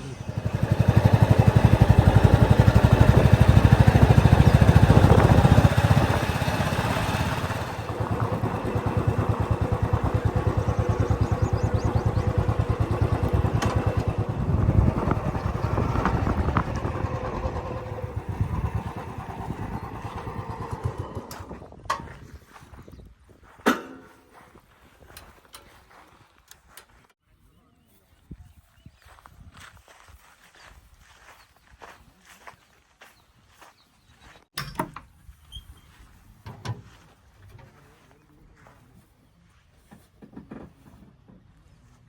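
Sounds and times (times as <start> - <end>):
vehicle engine throbbing: 0.0 - 21.8.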